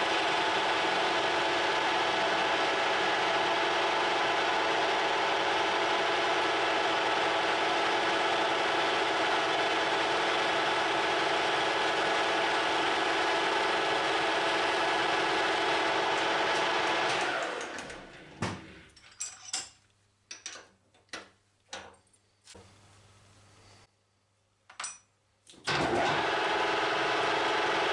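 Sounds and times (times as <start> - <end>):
metal lathe running: 0.0 - 17.9.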